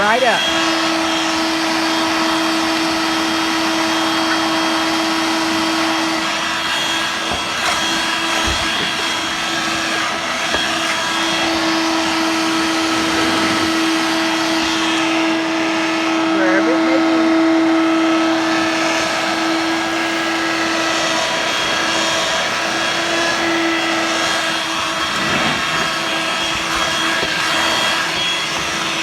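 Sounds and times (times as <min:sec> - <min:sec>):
vacuum cleaner running: 0:00.0 - 0:29.0.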